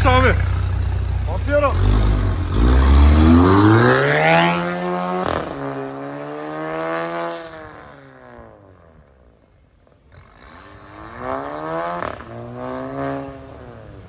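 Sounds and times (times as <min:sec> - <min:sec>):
exhaust crack: 0:00.0 - 0:06.0, 0:10.0 - 0:14.0
car engine accelerating hard: 0:00.0 - 0:08.4, 0:10.3 - 0:14.0.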